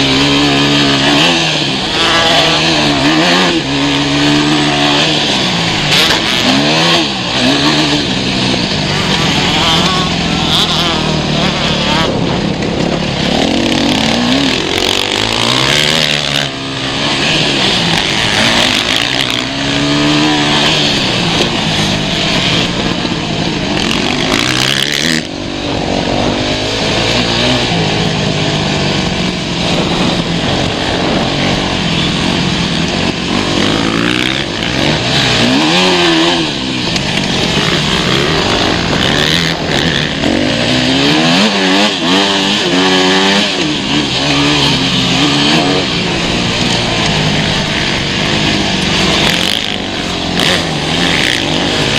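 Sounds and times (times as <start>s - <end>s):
motorcycle engines revving: 0.0s - 51.9s.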